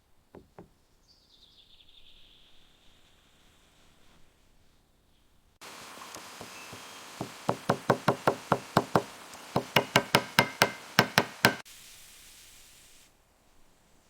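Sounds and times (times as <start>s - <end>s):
hammer blows: 5.6s - 11.6s.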